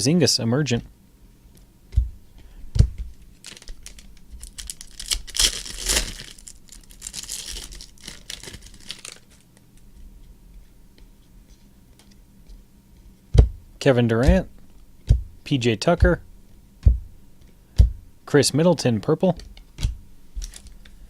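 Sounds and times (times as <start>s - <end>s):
dull thumps: 1.9s - 3.2s, 13.3s - 18.2s
foil wrapper tearing and crinkling: 3.4s - 9.6s.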